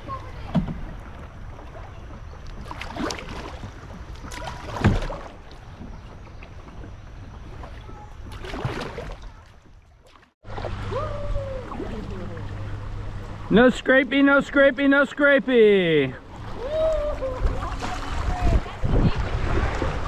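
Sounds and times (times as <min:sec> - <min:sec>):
kayak paddle splashing: 0:00.0 - 0:20.0
wind: 0:00.0 - 0:20.0
water rushing: 0:10.4 - 0:20.0.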